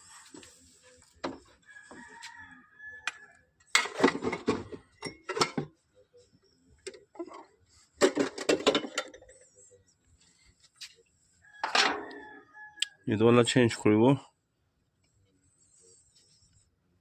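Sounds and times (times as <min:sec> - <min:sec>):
metal tools clinking and rattling: 0:03.7 - 0:05.7, 0:08.0 - 0:09.4, 0:11.6 - 0:12.2.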